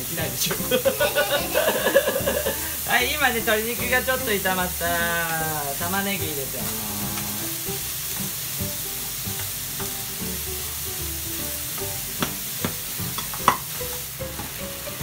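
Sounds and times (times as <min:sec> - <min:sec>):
chicken sizzling in a frying pan: 0:00.0 - 0:15.0
spatula knocking on a pan: 0:11.7 - 0:14.7.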